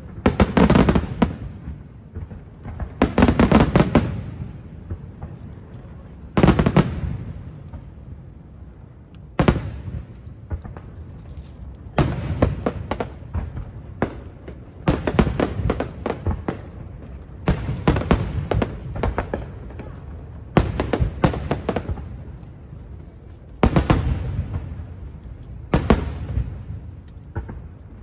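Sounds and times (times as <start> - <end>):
fireworks bursting: 0.0 - 28.0.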